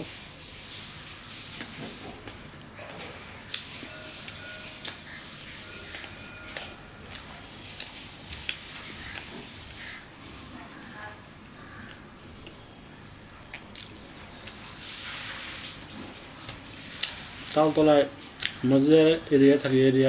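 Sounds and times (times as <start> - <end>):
man chewing food: 0.6 - 18.6
mouth clicks and smacks: 18.4 - 18.6.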